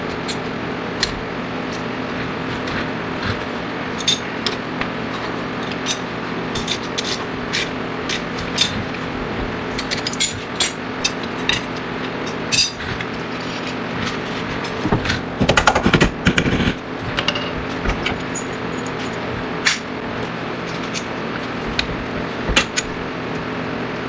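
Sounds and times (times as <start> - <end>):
steady background hum: 0.0 - 24.0
metal tools clinking and knocking: 4.0 - 9.0, 9.6 - 13.8, 17.0 - 19.9, 20.6 - 23.0
rapid impacts: 13.8 - 23.1.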